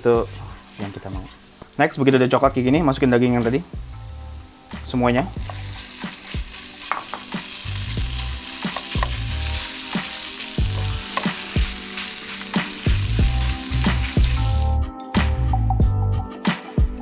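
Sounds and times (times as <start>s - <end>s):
meat sizzling in hot oil: 0.0s - 14.9s
spatula scraping a pan: 5.4s - 14.6s.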